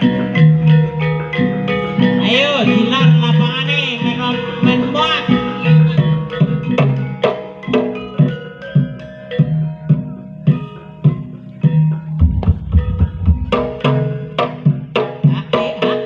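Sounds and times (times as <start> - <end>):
low drum strokes: 12.2 - 14.2
struck metal percussion ringing: 12.2 - 14.3.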